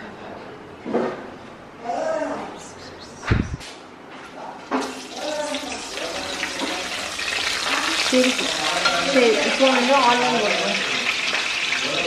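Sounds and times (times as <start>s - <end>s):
vegetables sizzling in oil: 4.8s - 12.0s.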